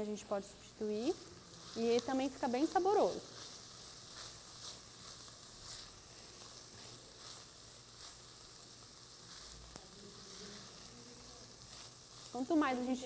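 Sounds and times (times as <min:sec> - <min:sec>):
corn sizzling in a frying pan: 0:00.0 - 0:13.0
spatula scraping a pan: 0:01.3 - 0:09.8.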